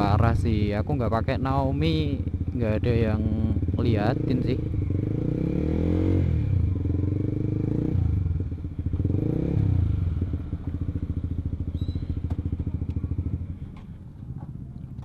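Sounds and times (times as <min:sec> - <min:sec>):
motorcycle engine revving and idling: 0:00.0 - 0:15.0.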